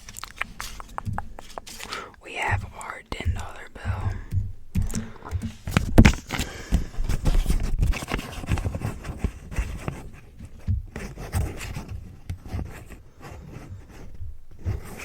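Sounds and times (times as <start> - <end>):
paper bill crinkling: 0.0 - 2.2.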